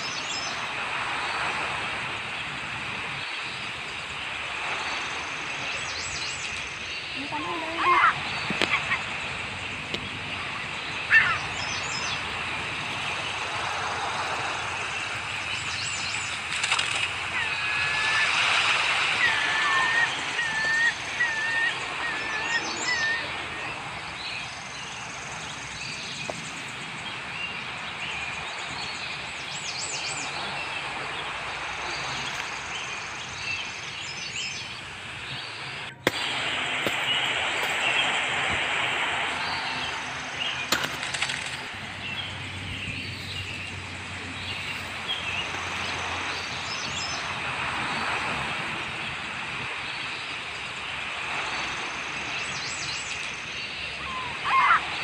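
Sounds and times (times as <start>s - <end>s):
birds chirping: 0.0s - 55.0s
outdoor hiss: 0.0s - 55.0s
bird warbling call: 5.7s - 9.2s, 9.8s - 13.4s, 15.0s - 25.0s.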